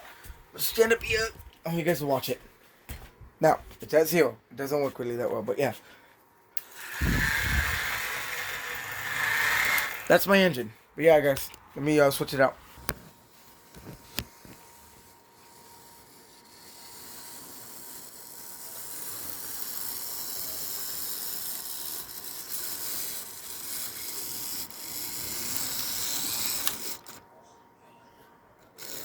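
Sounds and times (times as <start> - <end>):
model train rattling whir: 6.6 - 10.2, 15.6 - 27.2, 28.6 - 29.0.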